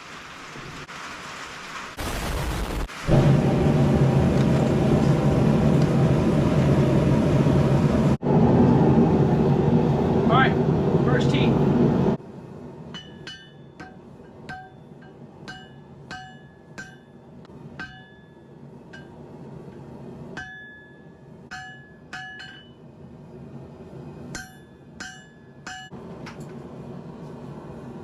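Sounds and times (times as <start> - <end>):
hammer striking metal on anvil: 12.9 - 19.2, 20.3 - 22.8, 24.3 - 26.0.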